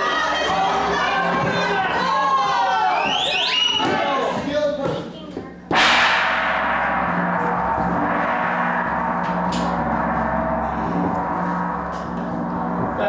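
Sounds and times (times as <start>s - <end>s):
large gong ringing: 5.7s - 13.0s.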